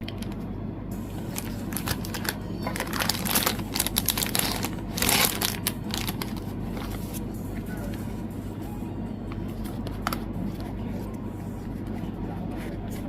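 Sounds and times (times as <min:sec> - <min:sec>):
plastic crinkling and rustling: 0:01.3 - 0:07.2.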